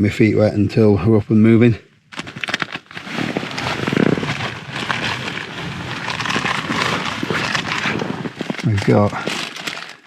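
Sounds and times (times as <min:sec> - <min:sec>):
rain pattering on tent: 0:02.1 - 0:10.0.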